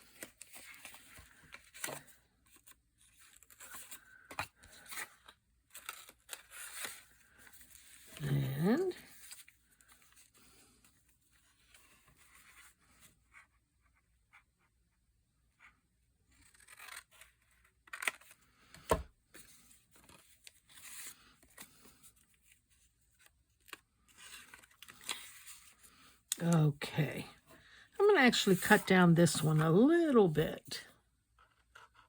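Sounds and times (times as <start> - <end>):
paper rustling and tearing: 16.3 - 18.4.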